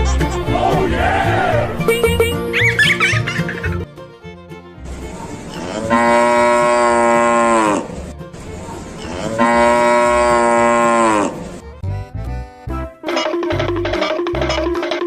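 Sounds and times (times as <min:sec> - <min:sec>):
light background music: 0:00.0 - 0:15.0
cow mooing: 0:05.5 - 0:08.0, 0:09.0 - 0:11.5.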